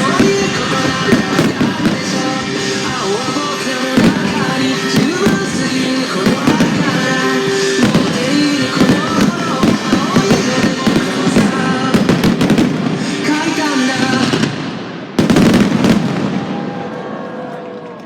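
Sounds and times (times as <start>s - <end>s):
music: 0.0s - 15.0s
fireworks bursting and crackling: 0.0s - 16.8s
volley of firework bangs: 0.0s - 16.8s.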